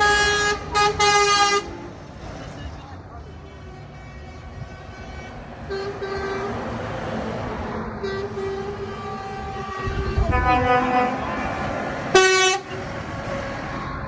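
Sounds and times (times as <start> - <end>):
higher-pitched horn: 0.0 - 1.8, 8.0 - 14.0
truck air horn blasts: 0.0 - 1.9, 3.3 - 6.9, 8.0 - 14.0
truck engines rumbling: 0.0 - 14.0.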